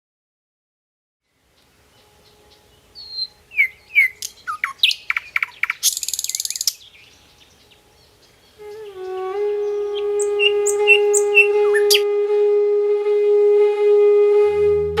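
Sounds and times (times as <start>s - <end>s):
birds chirping: 1.3s - 12.0s
dry rattling bird trill: 3.0s - 8.2s
whistled bird note: 8.6s - 12.4s.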